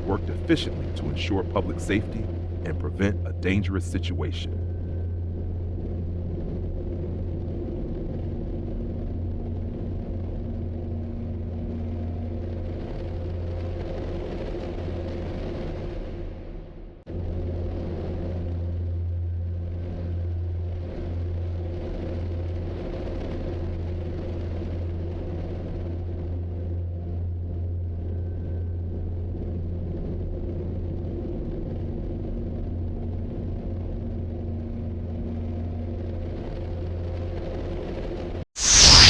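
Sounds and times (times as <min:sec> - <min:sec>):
low rumble: 0:38.6 - 0:39.0.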